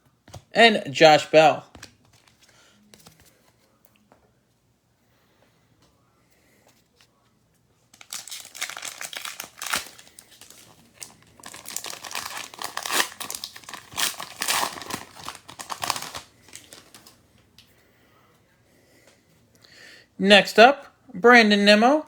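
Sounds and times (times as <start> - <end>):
wrapper being torn and crinkled: 8.0 - 17.2.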